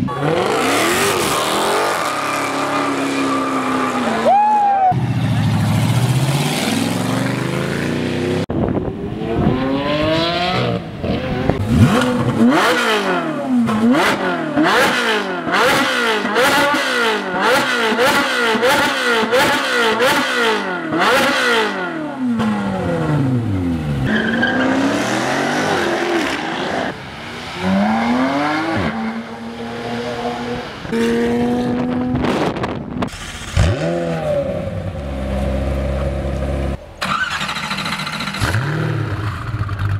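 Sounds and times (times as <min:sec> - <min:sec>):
car engine revving: 0:00.0 - 0:04.2, 0:05.0 - 0:39.9
exhaust cracks: 0:31.8 - 0:39.9.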